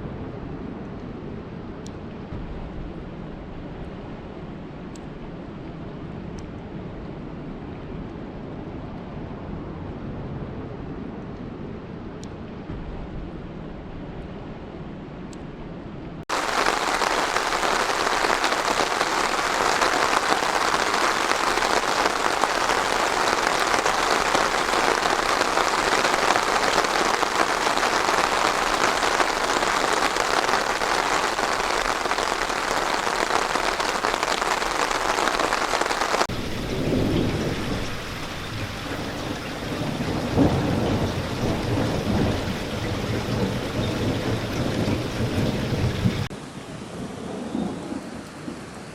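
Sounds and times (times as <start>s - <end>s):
light rain: 16.2s - 48.9s
heavy rain hissing: 16.3s - 47.0s
low rolling thunder: 16.3s - 48.9s.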